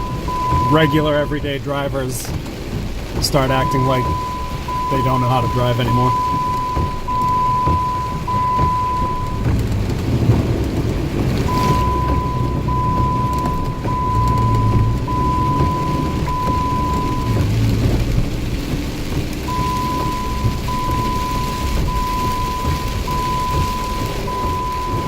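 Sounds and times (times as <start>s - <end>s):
high-pitched electronic beep: 0.0s - 1.4s, 3.5s - 9.4s, 11.5s - 17.4s
heavy rain: 0.0s - 25.0s
low rumbling thunder: 0.0s - 25.0s.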